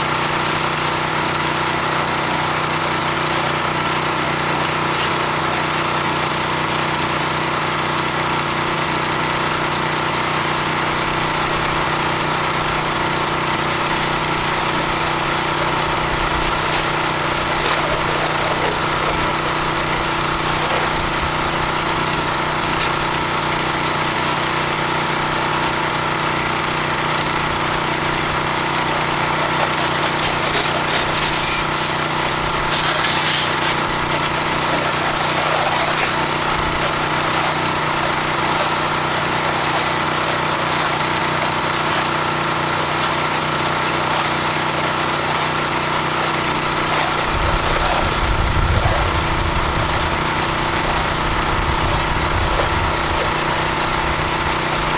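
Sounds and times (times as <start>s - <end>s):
pressure washer engine drone: 0.0s - 54.9s
water spray hissing: 29.2s - 49.1s.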